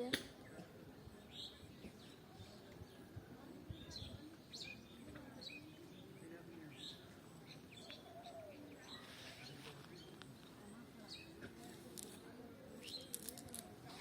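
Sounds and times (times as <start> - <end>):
distant murmuring voices: 0.0 - 14.0
faint bird chirps: 0.4 - 11.4.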